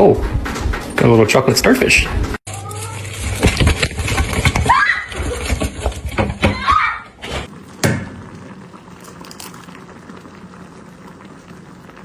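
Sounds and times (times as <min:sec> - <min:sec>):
room hum: 0:07.5 - 0:12.0
sharp knock: 0:07.8 - 0:08.3.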